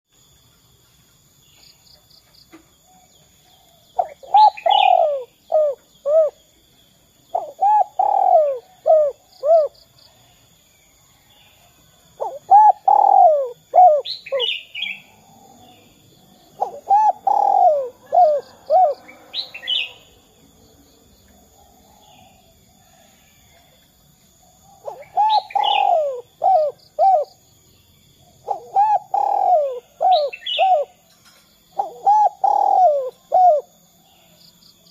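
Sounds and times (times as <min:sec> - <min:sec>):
small birds chirping: 0:00.1 - 0:34.9
dove cooing: 0:02.9 - 0:06.4, 0:07.3 - 0:09.8, 0:12.2 - 0:15.9, 0:16.5 - 0:20.1, 0:24.7 - 0:27.4, 0:28.2 - 0:31.0, 0:31.7 - 0:33.8.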